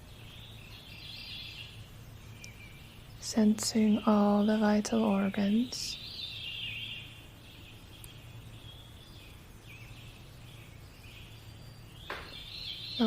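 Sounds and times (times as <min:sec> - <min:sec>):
faint birds chirping: 0:00.0 - 0:13.0
low steady hum: 0:00.0 - 0:13.0.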